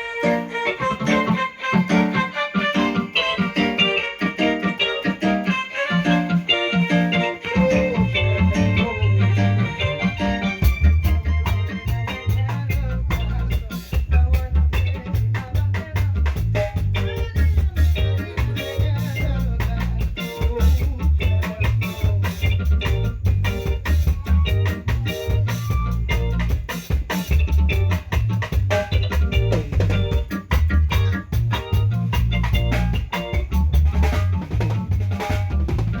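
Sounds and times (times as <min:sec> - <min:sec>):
drum kit beat: 0:00.0 - 0:36.0
guitar or keyboard lines: 0:00.0 - 0:36.0
heavy bass line: 0:00.0 - 0:36.0
live band playing: 0:00.0 - 0:36.0
person singing: 0:05.7 - 0:16.4, 0:17.1 - 0:22.4.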